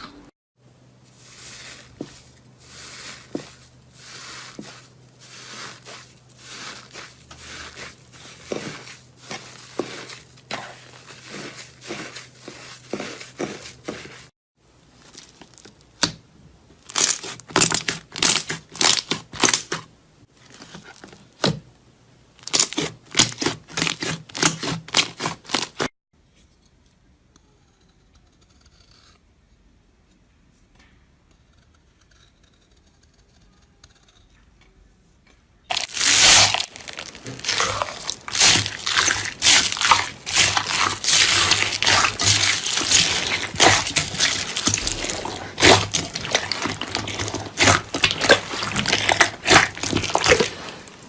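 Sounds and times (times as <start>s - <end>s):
slime squishing and crackling: 1.2s - 14.3s, 14.9s - 16.2s, 16.8s - 19.8s, 22.4s - 25.9s, 35.7s - 51.0s.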